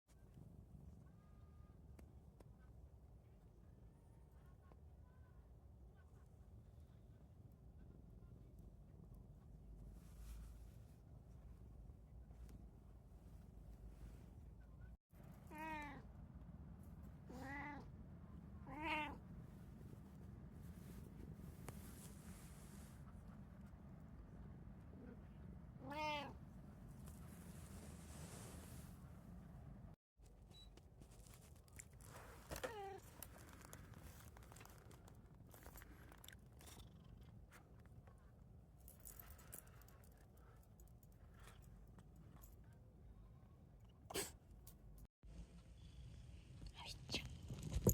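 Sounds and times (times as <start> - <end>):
cat meowing: 15.5 - 16.0, 17.3 - 17.9, 18.6 - 19.2, 25.8 - 26.4
faint clicks and crinkles: 30.2 - 42.8.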